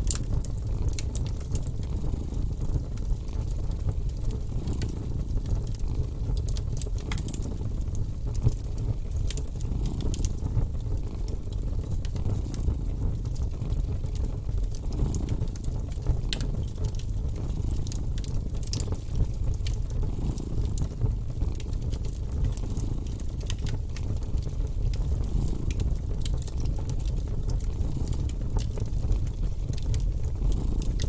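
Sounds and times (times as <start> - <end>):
wood fire crackling and popping: 0.0 - 31.0
cat purring: 9.6 - 11.2, 20.0 - 20.9, 30.5 - 31.0.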